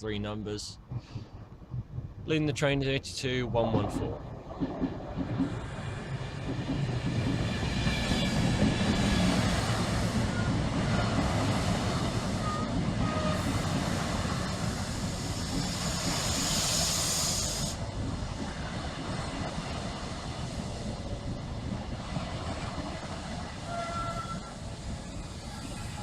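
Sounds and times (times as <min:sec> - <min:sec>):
train rumbling: 0:00.0 - 0:26.0
air hissing from train: 0:07.7 - 0:21.6, 0:23.0 - 0:26.0.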